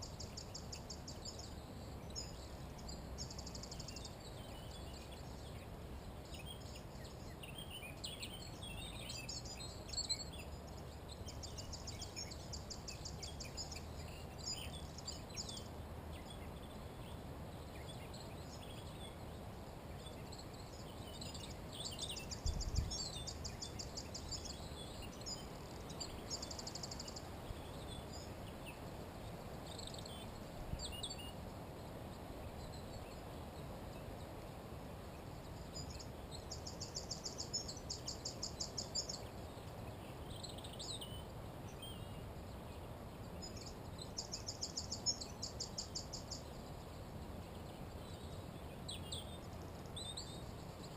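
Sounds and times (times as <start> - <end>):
bird chirps: 0.0 - 19.3, 20.0 - 31.4, 35.1 - 50.9
songbird trills: 0.0 - 50.9.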